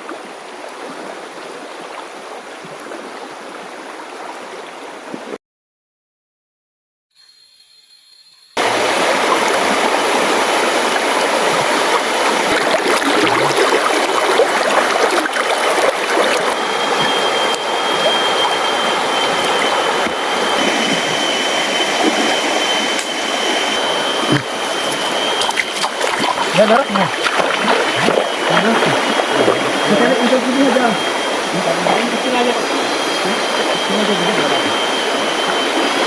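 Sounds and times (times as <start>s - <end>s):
thin steady high tone: 7.2s - 10.6s, 14.6s - 36.0s
river rushing over rocks: 8.6s - 36.0s.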